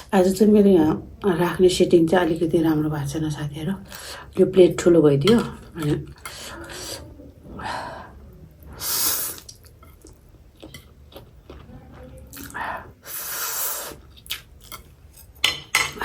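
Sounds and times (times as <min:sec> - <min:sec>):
wet chewing and mouth noises: 0:09.2 - 0:15.4.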